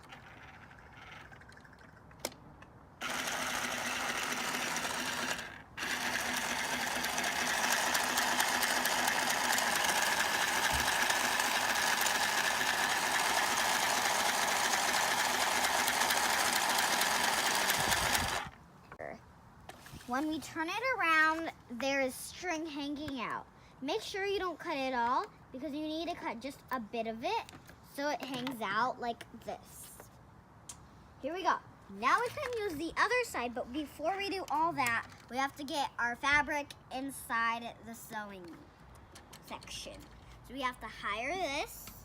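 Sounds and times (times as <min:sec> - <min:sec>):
sewing machine stitching: 0:03.0 - 0:18.5.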